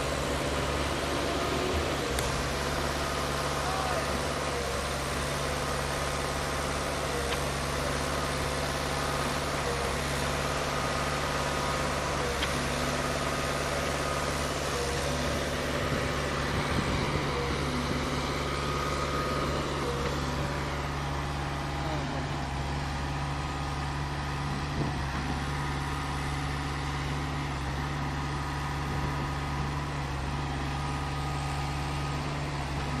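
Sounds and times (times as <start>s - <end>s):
concrete pump running: 0.0s - 33.0s.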